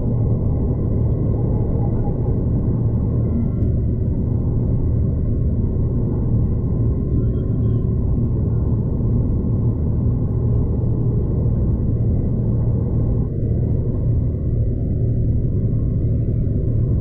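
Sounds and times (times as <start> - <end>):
train rumbling from inside carriage: 0.0 - 17.0.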